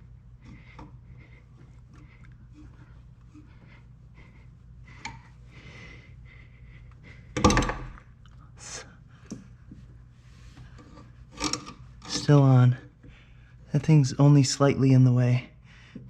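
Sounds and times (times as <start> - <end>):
loud metal thunk: 7.4 - 8.0.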